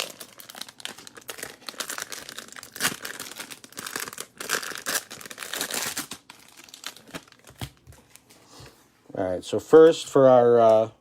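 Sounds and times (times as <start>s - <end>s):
packaging ripping: 0.0s - 8.2s
wrapper crinkling: 0.0s - 8.3s.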